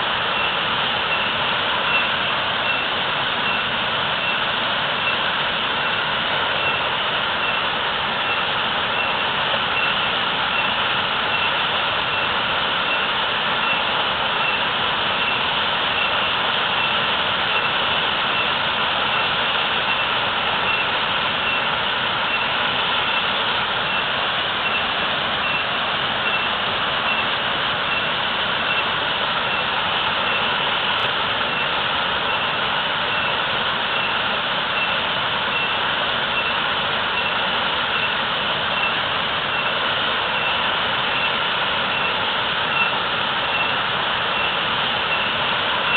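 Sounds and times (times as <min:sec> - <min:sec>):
waterfall roaring: 0:00.0 - 0:45.9.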